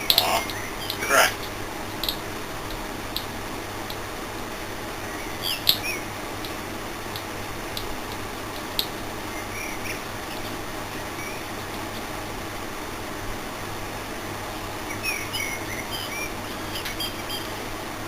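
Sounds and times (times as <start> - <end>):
transformer humming: 0.0 - 5.6
faint clicks: 6.4 - 9.0.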